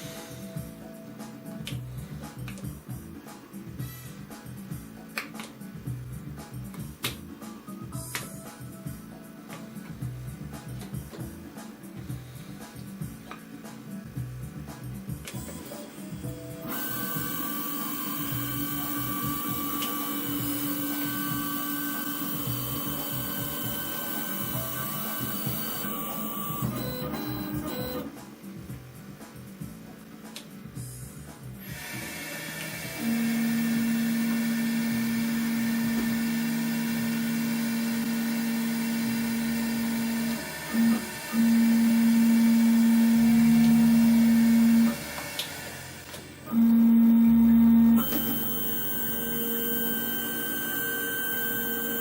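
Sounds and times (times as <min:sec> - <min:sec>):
engraving machine running: 0:16.6 - 0:28.1, 0:31.7 - 0:52.0
spindle and drive motors whirring: 0:16.6 - 0:28.2, 0:31.6 - 0:52.0.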